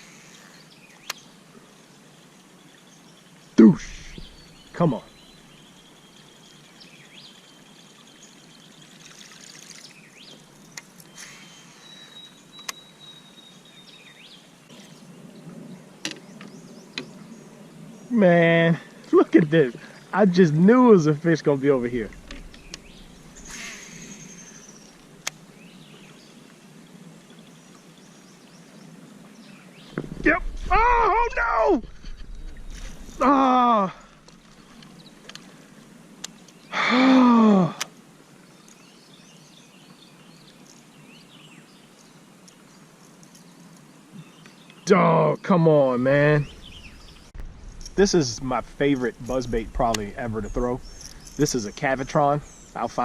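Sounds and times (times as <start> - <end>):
water trickling and gurgling: 0.0 - 15.6, 18.4 - 30.4
bird chirps: 2.6 - 9.1, 9.7 - 15.1, 21.6 - 26.3, 38.6 - 53.0.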